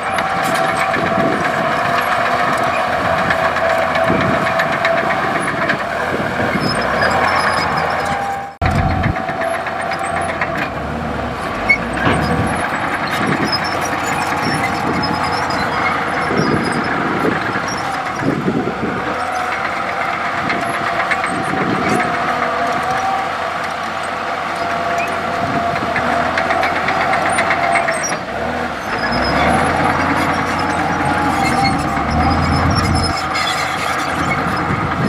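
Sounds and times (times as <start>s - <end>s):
knocks and clanks: 0.0s - 23.8s
bulldozer diesel engine running: 0.0s - 35.0s.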